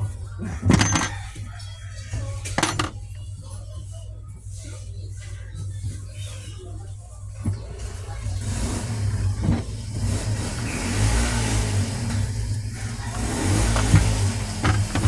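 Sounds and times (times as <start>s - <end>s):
washing machine motor running: 0.0s - 3.4s, 7.3s - 15.0s.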